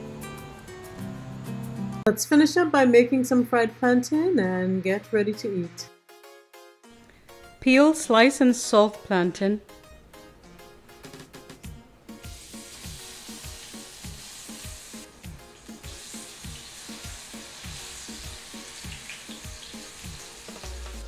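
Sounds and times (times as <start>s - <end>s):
plantain slices sizzling in oil: 12.2s - 21.0s.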